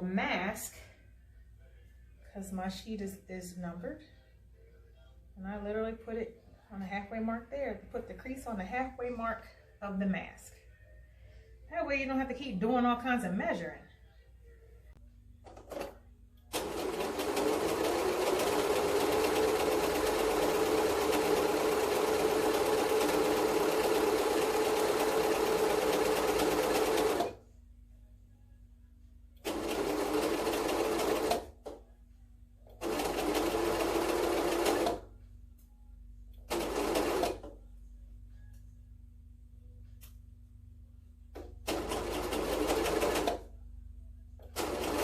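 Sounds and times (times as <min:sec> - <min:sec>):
electric sewing machine stitching: 0:16.5 - 0:27.4, 0:29.4 - 0:31.4, 0:32.8 - 0:35.0, 0:36.5 - 0:37.5, 0:41.7 - 0:43.4, 0:44.5 - 0:45.0.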